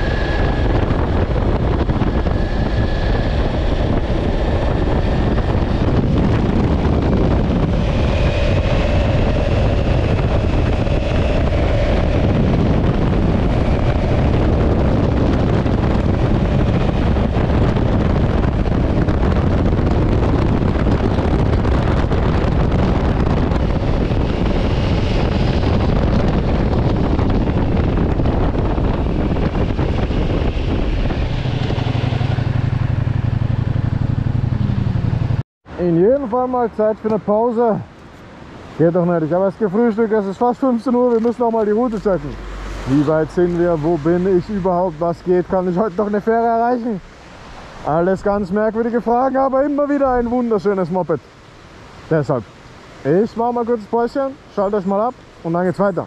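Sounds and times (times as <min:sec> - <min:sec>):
motorcycle engine running: 0:00.0 - 0:35.4
wind rush on microphone: 0:00.0 - 0:56.0.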